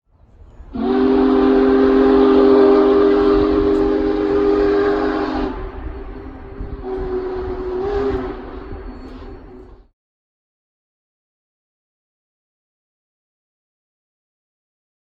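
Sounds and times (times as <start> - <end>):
train rumbling: 0.1 - 9.9
locomotive air horn: 0.7 - 9.8.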